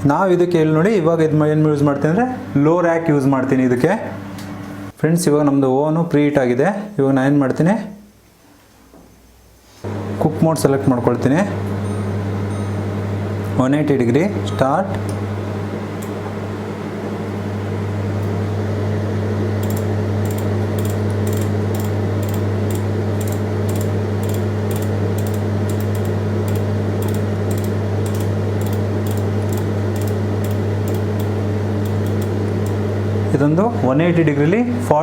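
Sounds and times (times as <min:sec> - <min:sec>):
microwave oven humming: 0:00.0 - 0:05.0, 0:09.9 - 0:35.0
light irregular ticks: 0:19.6 - 0:32.8.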